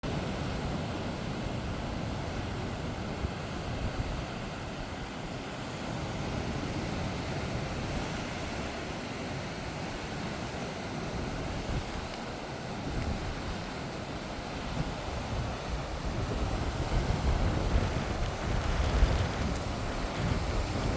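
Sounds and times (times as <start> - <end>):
waves breaking on shore: 0.0 - 20.9
wind on microphone: 0.0 - 20.9.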